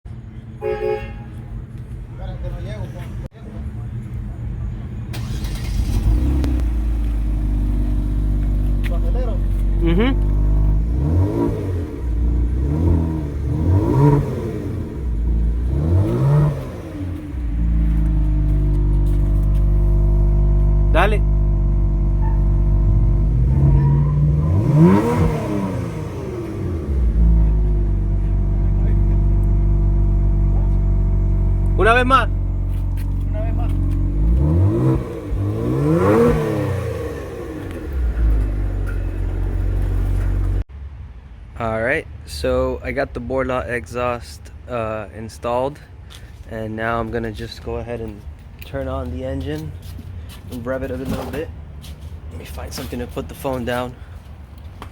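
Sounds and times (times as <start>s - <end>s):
car engine revving: 5.1s - 40.7s.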